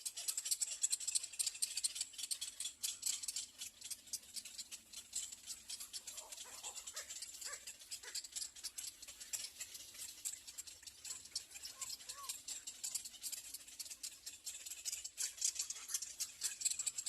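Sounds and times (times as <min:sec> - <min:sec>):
chicks high ticking calls: 0:04.0 - 0:14.5.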